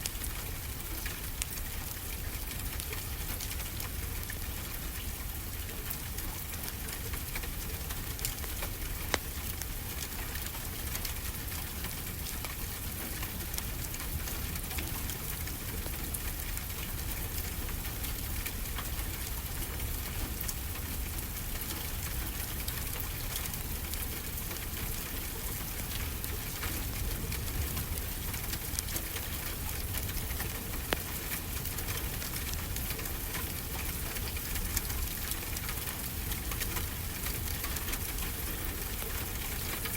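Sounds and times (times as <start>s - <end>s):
rain hiss: 0.0s - 39.9s
wood fire crackles: 0.0s - 39.9s.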